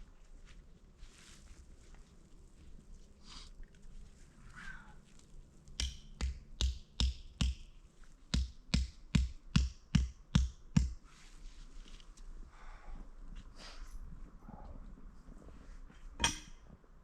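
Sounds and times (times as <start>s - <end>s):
hard knocks with sharp crack: 5.8s - 7.6s.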